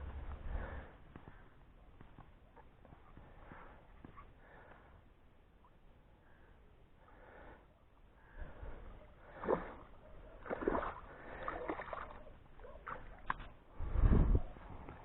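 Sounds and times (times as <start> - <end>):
water splashing: 9.2 - 13.6.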